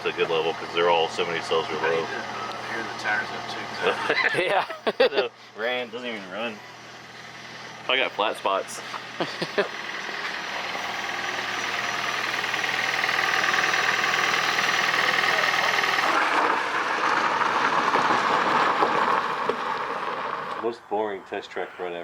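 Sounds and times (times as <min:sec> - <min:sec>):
car engine humming: 0:00.0 - 0:22.0.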